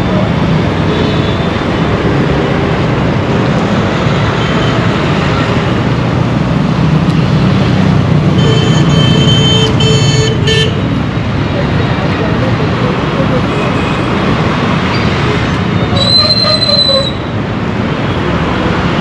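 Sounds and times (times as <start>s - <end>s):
vehicle engines running: 0.0s - 19.0s
vehicle horn honking: 8.4s - 10.8s.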